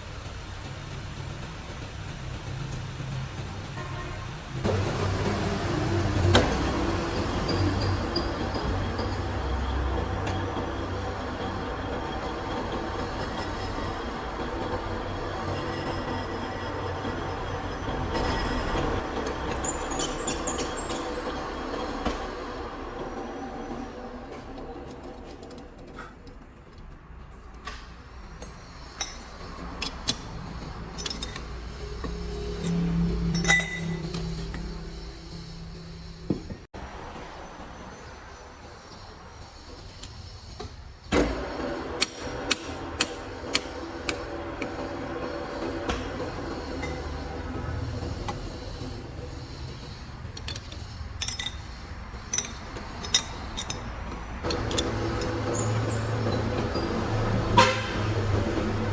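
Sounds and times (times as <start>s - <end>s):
metal tools clinking: 19.1s - 22.2s, 28.4s - 34.8s, 49.7s - 57.7s.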